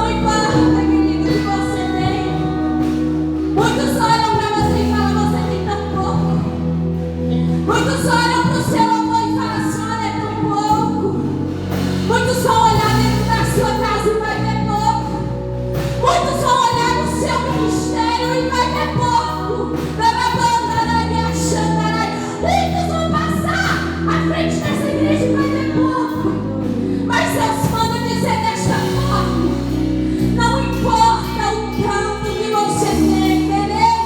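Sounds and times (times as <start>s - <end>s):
keyboard and bass chords: 0.0s - 34.0s
woman singing slow melody: 12.1s - 34.0s.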